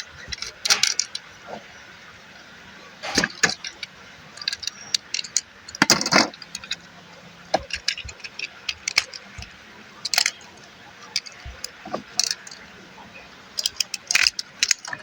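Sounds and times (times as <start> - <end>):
plastic toy parts clicking: 0.0 - 1.3, 3.0 - 12.8, 13.5 - 15.0.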